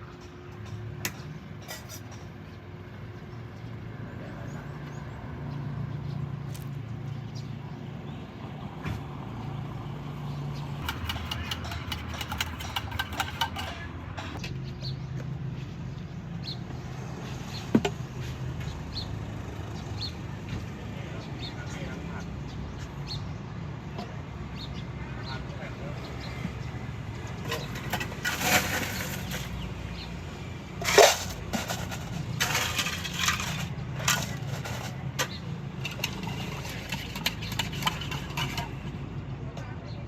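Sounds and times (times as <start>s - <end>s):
road traffic hum: 0.0s - 40.0s
rapid clinking and clattering: 10.8s - 14.4s, 30.8s - 38.8s.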